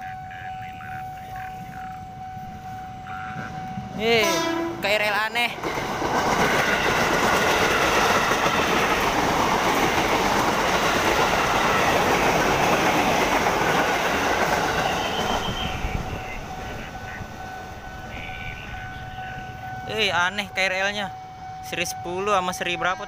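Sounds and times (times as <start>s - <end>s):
steady high tone: 0.0s - 5.5s, 10.6s - 23.0s
train wheel-on-rail noise: 0.0s - 23.0s.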